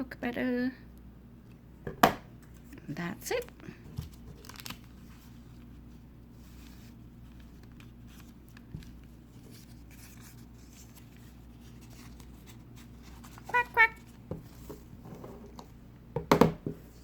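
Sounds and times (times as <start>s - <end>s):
paper rustling and tapping: 6.7s - 14.9s.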